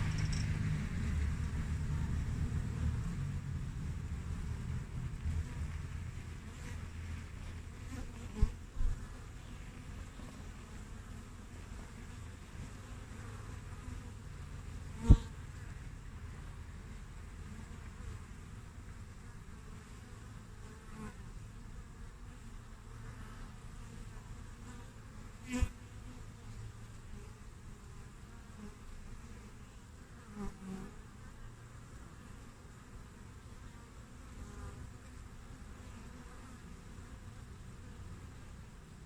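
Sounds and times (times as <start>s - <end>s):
bee flying past microphone: 0.0s - 14.2s, 14.9s - 15.4s, 23.0s - 31.1s
honeybees buzzing: 0.0s - 39.0s.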